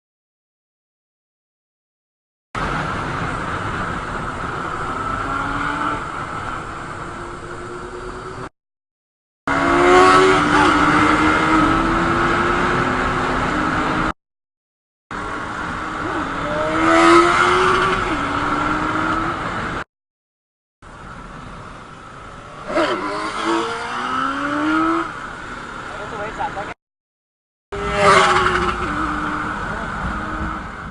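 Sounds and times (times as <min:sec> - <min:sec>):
motorcycle engine revving: 0:09.5 - 0:14.1, 0:22.5 - 0:25.2, 0:27.8 - 0:30.9.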